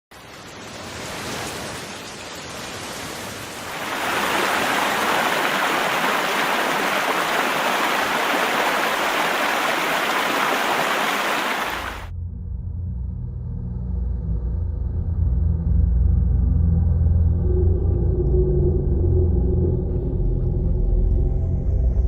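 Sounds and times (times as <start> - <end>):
rushing water: 0.1 - 12.1.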